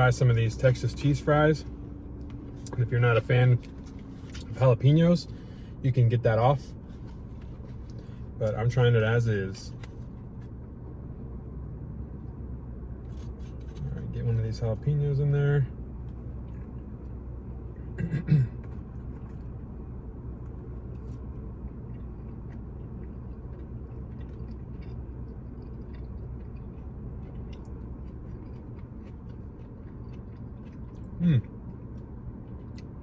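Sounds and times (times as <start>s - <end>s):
low background hum: 0.0s - 33.0s
person chewing food: 18.6s - 19.7s, 20.3s - 33.0s
person humming mm: 31.2s - 31.4s.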